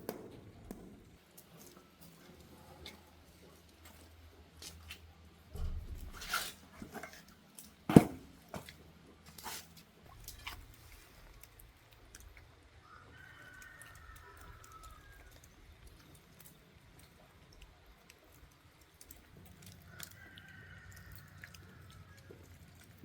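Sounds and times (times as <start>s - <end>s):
rooster crowing: 12.8s - 15.4s, 19.9s - 22.3s.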